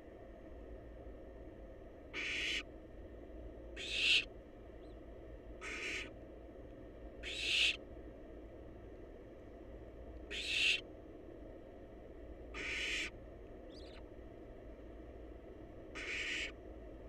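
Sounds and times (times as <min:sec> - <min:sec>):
owl nestlings hissing screeches: 0:02.2 - 0:02.6, 0:03.8 - 0:04.3, 0:05.6 - 0:06.1, 0:07.2 - 0:07.8, 0:10.3 - 0:10.8, 0:12.6 - 0:13.1, 0:16.0 - 0:16.6.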